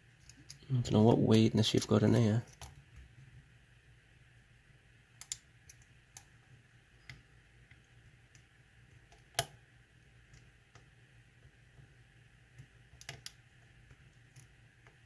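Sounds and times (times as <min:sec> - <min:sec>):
low steady hum: 0:00.0 - 0:15.0
metallic clicks of lock picking: 0:05.2 - 0:06.3.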